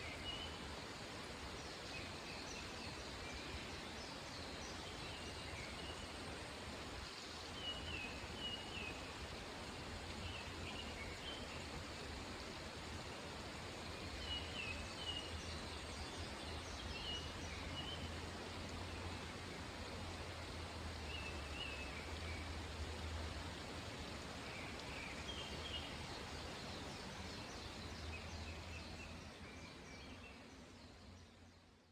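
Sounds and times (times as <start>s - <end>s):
flowing water: 0.0s - 31.8s.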